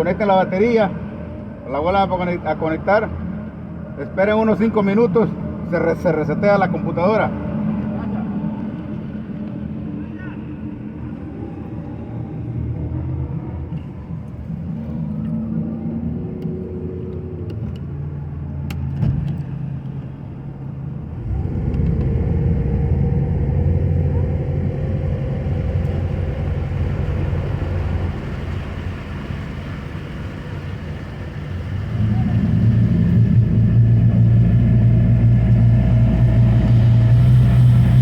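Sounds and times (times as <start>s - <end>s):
engine running: 8.5s - 38.0s.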